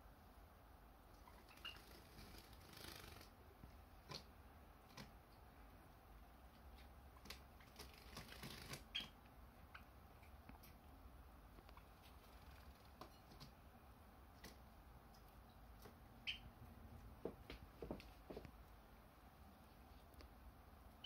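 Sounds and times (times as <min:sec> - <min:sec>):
bird high peeps: 0:01.2 - 0:03.0, 0:08.6 - 0:10.0, 0:16.2 - 0:16.6.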